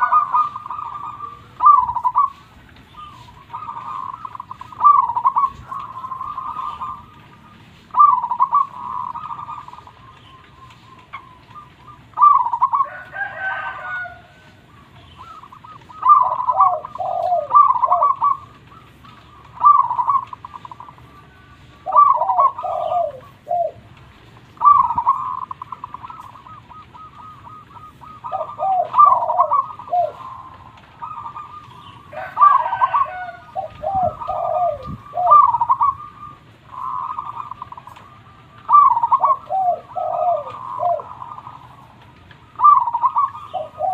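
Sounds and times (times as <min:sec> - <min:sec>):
dove cooing: 0:00.0 - 0:43.9.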